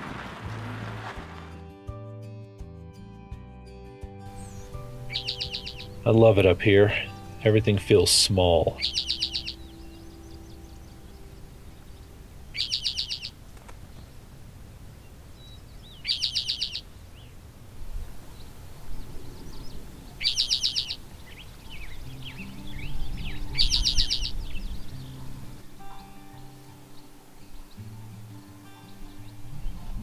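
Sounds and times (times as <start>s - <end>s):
low background music: 0.0s - 13.3s, 19.1s - 30.0s
birds chirping softly: 4.3s - 30.0s
bird buzzy trill: 4.4s - 6.0s, 8.8s - 9.8s.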